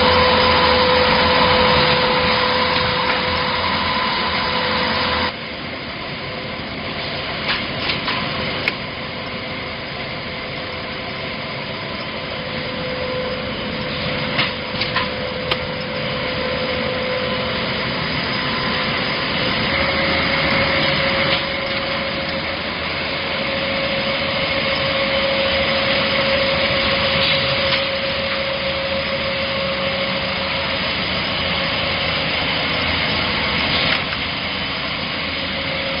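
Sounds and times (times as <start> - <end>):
winding machine whining: 0.0 - 5.6, 8.2 - 36.0
machinery clicks and knocks: 13.8 - 16.1.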